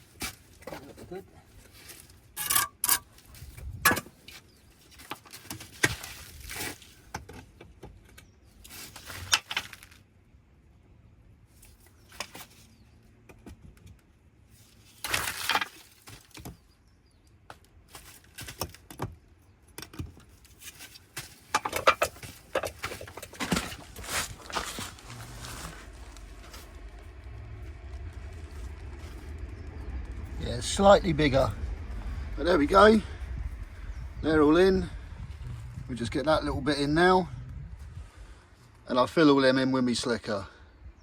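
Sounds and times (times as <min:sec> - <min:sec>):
trowel scraping: 0:21.6 - 0:26.6.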